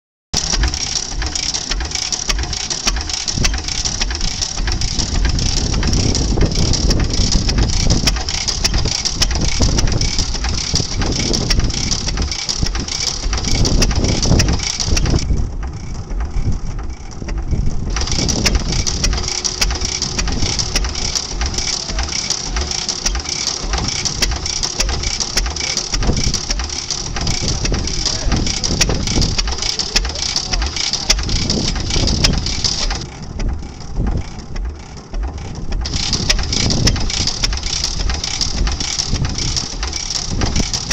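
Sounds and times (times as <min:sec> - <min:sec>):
mechanical clatter: 0:00.4 - 0:40.9
stationary gas engine running: 0:00.4 - 0:40.9.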